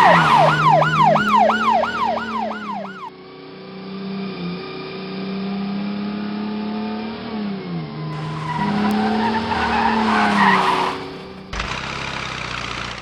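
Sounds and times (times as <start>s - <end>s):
cartoon car engine hum: 0.0s - 3.1s, 3.9s - 13.0s
tyre skid screeching: 0.0s - 3.1s, 8.2s - 13.0s.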